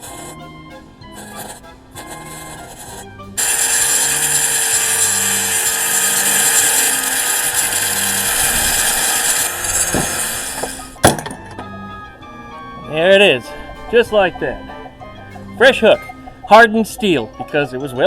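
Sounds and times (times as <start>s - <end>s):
arc welding crackling: 1.2s - 11.0s.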